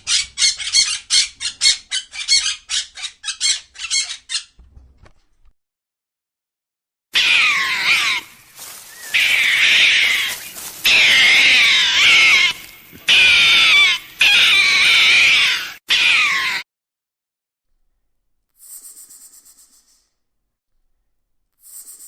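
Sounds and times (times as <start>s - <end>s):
animal crying high-pitched: 7.2s - 16.6s.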